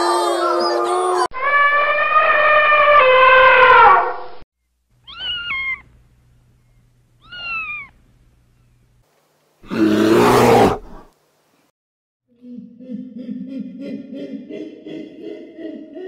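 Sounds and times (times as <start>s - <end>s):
cat meowing: 5.0s - 5.9s, 7.2s - 8.0s
rough growl: 9.6s - 11.1s.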